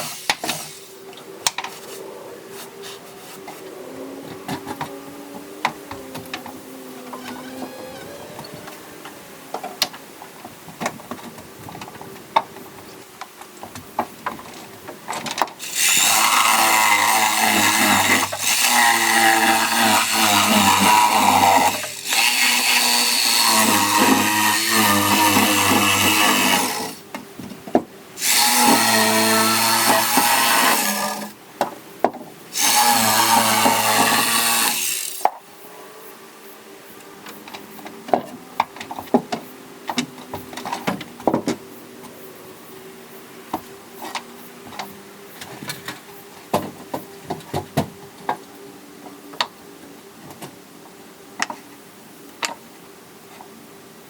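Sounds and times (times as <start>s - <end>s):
power saw cutting wood: 0.0s - 1.0s, 2.6s - 9.8s, 15.6s - 27.1s, 28.2s - 31.4s, 32.5s - 35.3s.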